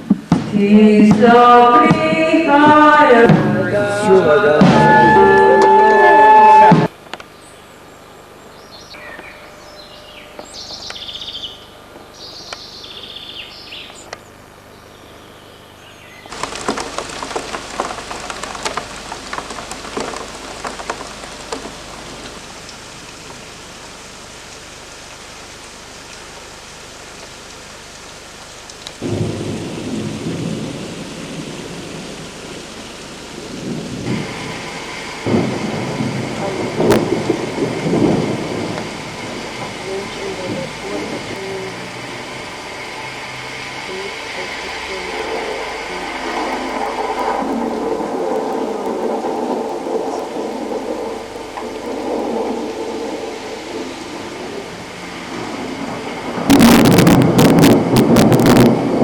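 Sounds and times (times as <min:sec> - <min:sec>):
deep rumbling: 0:00.0 - 0:06.9, 0:16.3 - 0:24.2, 0:29.0 - 0:59.0
heavy rain falling: 0:00.0 - 0:14.8, 0:16.3 - 0:59.0.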